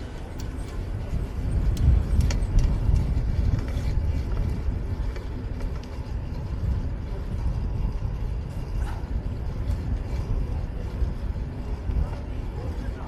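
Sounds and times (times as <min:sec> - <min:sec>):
road and traffic noise: 0:00.0 - 0:13.0
wind rumble on microphone: 0:00.0 - 0:13.0.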